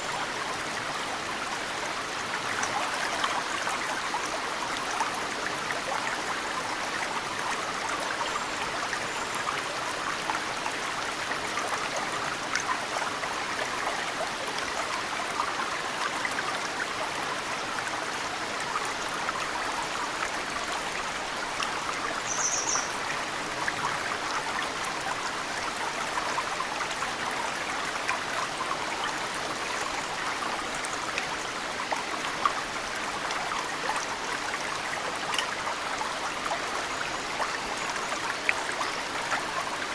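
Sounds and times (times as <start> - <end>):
mountain stream flowing: 0.0 - 39.9
water dripping and trickling: 0.0 - 39.9
high bird chirp: 22.3 - 22.9.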